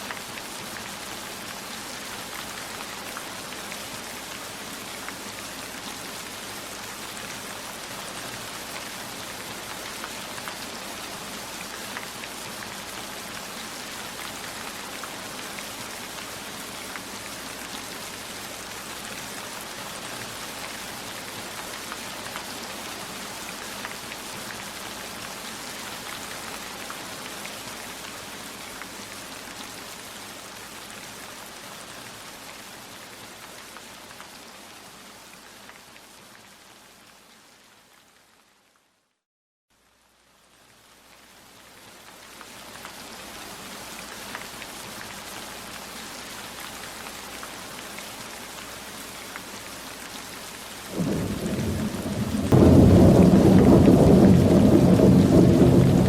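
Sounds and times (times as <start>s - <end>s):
heavy rain: 0.0s - 38.0s, 40.4s - 56.0s.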